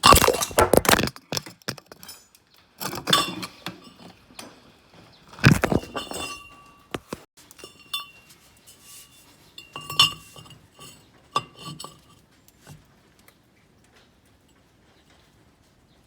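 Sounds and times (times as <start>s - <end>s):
metal tools clinking: 0.0s - 12.2s.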